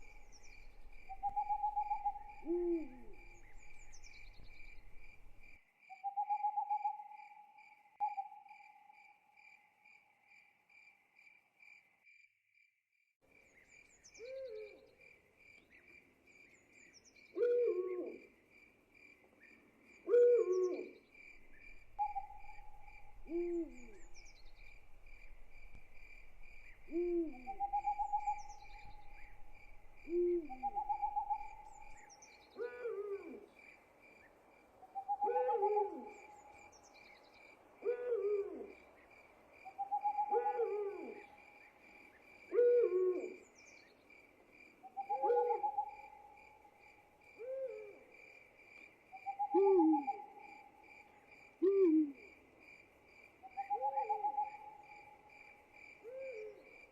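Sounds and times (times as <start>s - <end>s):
owl hooting: 0.0s - 5.4s, 17.4s - 18.2s, 20.1s - 33.5s, 35.0s - 36.6s, 37.8s - 38.8s, 39.7s - 41.4s, 42.5s - 43.4s, 44.9s - 46.2s, 47.4s - 48.0s, 49.2s - 50.6s, 51.6s - 52.3s, 53.5s - 55.2s, 56.0s - 56.6s
crickets chirping: 0.0s - 12.3s, 13.3s - 56.9s.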